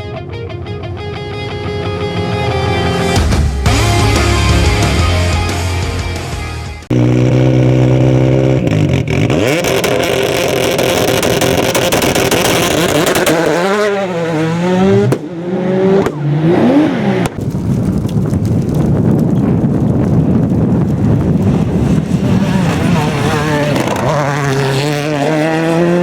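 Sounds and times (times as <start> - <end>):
rally car engine revving: 6.9 - 17.5, 20.8 - 26.0
noisy rush: 6.9 - 26.0.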